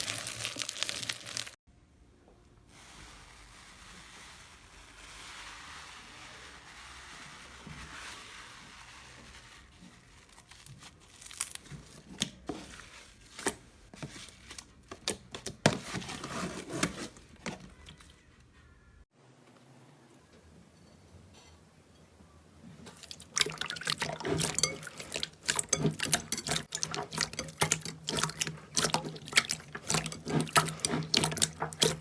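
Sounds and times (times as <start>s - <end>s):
slime crackling and popping: 0.0s - 1.6s
slime rustling: 0.0s - 1.6s, 2.8s - 18.3s, 22.8s - 32.0s.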